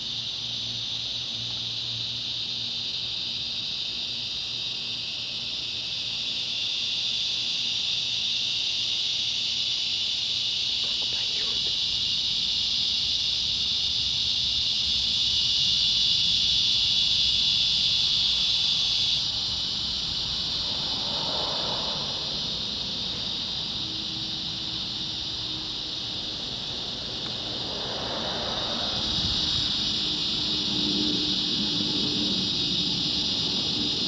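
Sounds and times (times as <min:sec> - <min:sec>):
cicadas buzzing: 0:00.0 - 0:34.0
distant airplane drone: 0:09.2 - 0:34.0.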